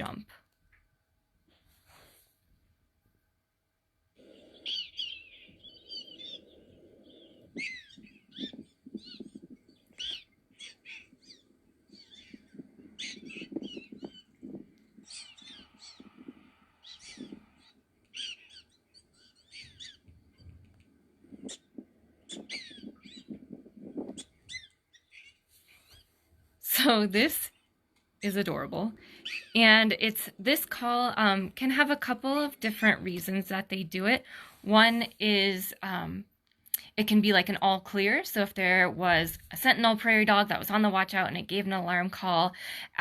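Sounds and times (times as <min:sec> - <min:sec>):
prairie dogs yipping: 0:04.2 - 0:26.2, 0:29.1 - 0:29.8.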